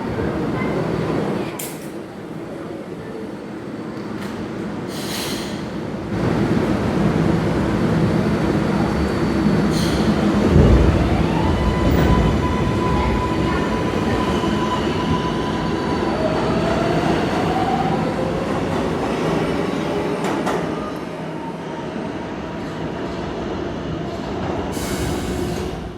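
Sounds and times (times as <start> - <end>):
subway train rumble: 0.0 - 25.9.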